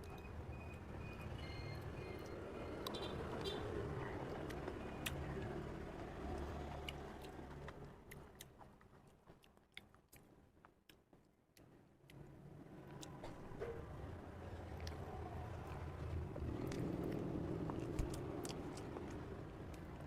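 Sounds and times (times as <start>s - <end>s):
person chewing and biting: 16.5s - 20.0s.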